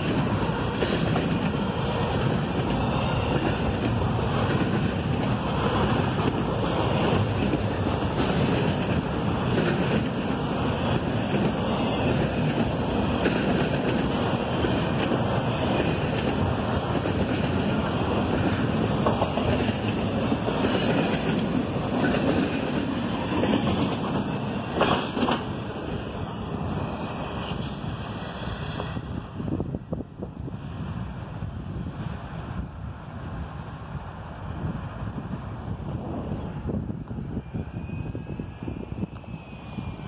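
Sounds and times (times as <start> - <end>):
train cars clanking: 0.0 - 29.0
train wheels rumbling on rail: 0.0 - 40.0.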